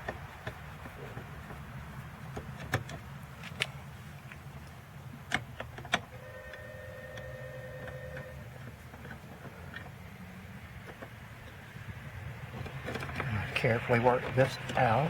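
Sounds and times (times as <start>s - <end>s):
brief steady whine: 6.2s - 8.4s.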